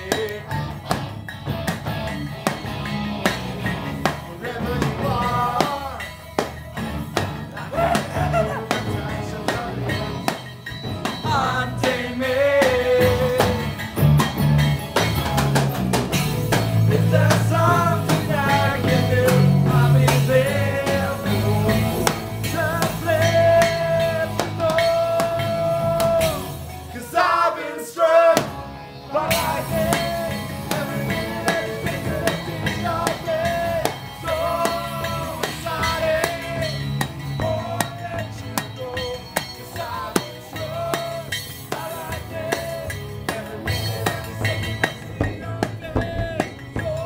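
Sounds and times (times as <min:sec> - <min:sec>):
person singing: 0:00.0 - 0:01.0, 0:03.9 - 0:06.6, 0:07.4 - 0:14.0, 0:16.7 - 0:47.0
drum kit: 0:00.0 - 0:27.4, 0:28.3 - 0:47.0
electric guitars: 0:00.0 - 0:27.4, 0:28.2 - 0:47.0.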